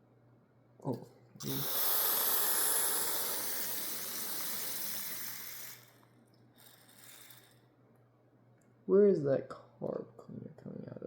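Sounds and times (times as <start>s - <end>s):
aerosol spray hissing: 1.4s - 7.5s.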